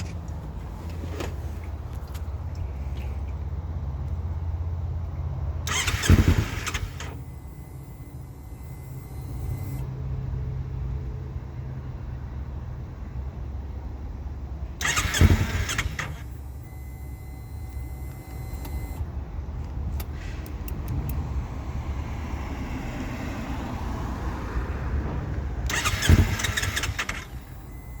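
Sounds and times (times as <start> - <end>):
electric starter cranking engine: 5.6 - 7.2, 14.8 - 16.3, 25.7 - 28.0.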